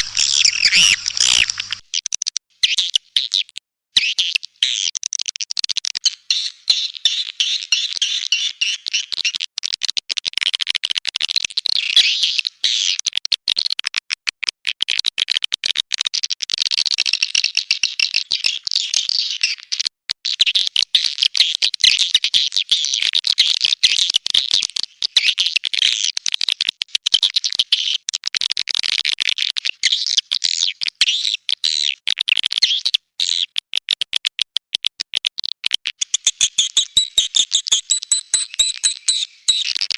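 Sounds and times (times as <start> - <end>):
swiftlets chattering: 36.4 - 39.7.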